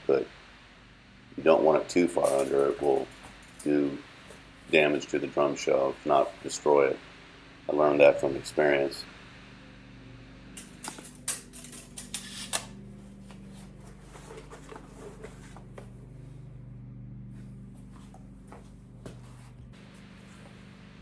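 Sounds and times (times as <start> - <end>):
steady low hum: 0.0 - 21.0
tools and metal parts clicking: 10.6 - 12.7.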